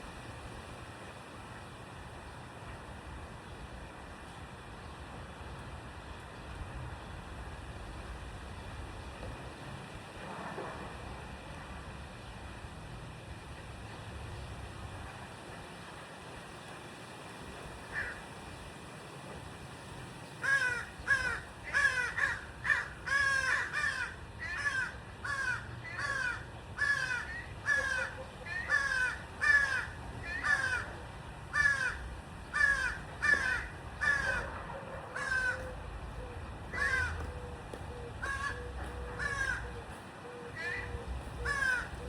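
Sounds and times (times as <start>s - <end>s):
bird calling: 35.1s - 42.0s.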